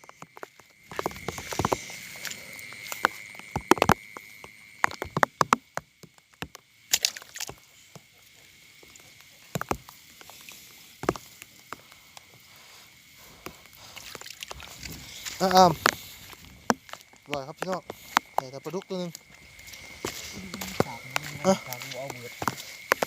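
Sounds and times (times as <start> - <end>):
person wading in shallow water: 0.0 - 5.7, 6.8 - 23.0
high-pitched night chorus: 14.5 - 23.0.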